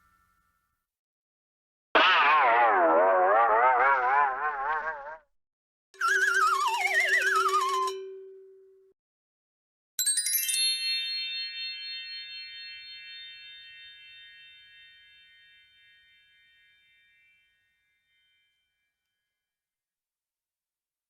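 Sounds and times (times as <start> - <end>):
bell tree glissando ringing: 10.0 - 19.2.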